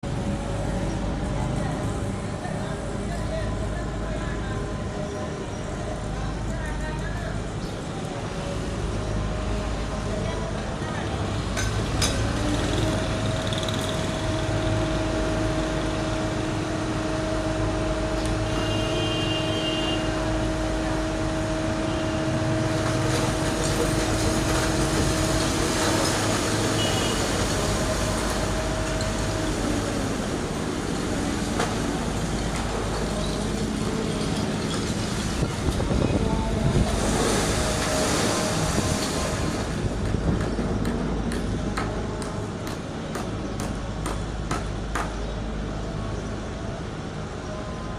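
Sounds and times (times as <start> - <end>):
diesel engine running: 7.2 - 47.8.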